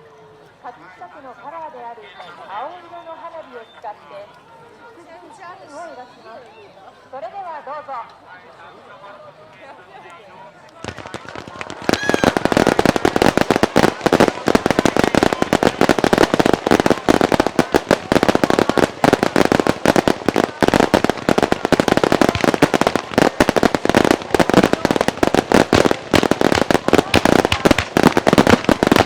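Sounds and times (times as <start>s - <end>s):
fireworks crackle: 10.7s - 29.0s
fireworks bursts and bangs: 10.8s - 29.0s.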